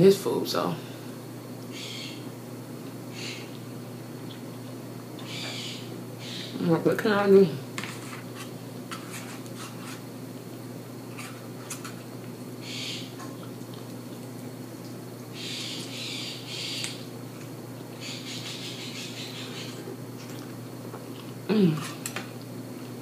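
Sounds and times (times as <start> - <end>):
person chewing and smacking: 13.3 - 14.5, 19.7 - 21.4
person humming mmm: 21.4 - 22.1.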